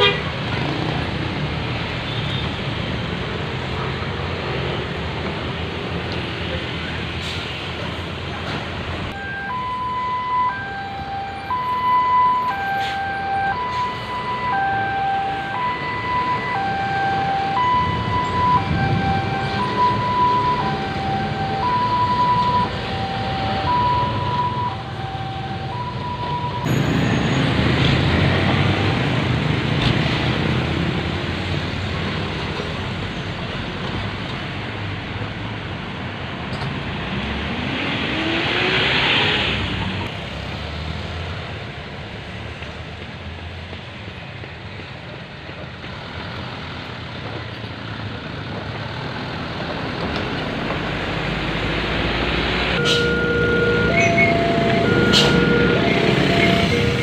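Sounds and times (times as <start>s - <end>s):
road traffic: 0.0s - 57.0s
two-tone warning siren: 9.1s - 28.8s, 52.6s - 57.0s
engine revving up: 17.6s - 31.8s, 36.9s - 40.0s, 50.5s - 57.0s.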